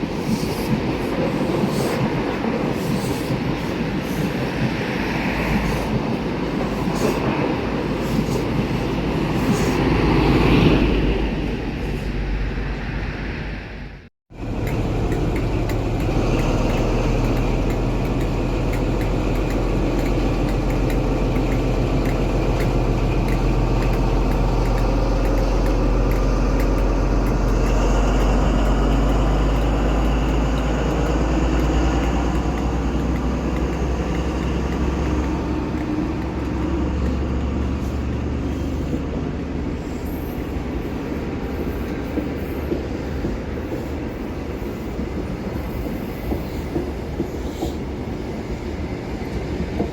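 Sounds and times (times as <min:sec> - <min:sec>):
train passing: 0:00.0 - 0:49.9
train wheel clicks: 0:14.4 - 0:48.4.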